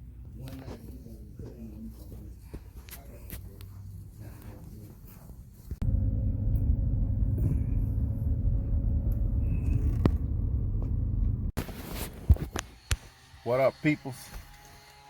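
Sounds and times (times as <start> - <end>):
pickup truck engine rumbling: 5.8 - 11.6.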